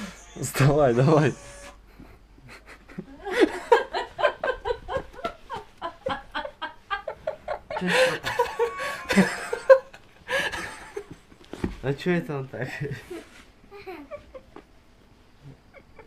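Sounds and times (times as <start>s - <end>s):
person laughing: 2.4s - 11.2s, 15.4s - 16.0s.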